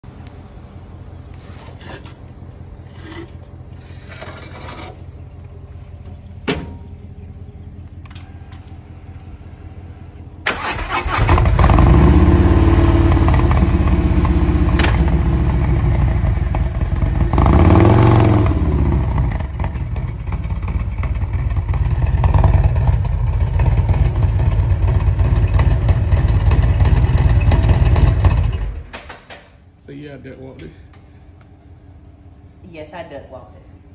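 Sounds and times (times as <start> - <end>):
motorcycle engine running: 8.6 - 28.9
motorcycle engine revving: 10.5 - 28.9.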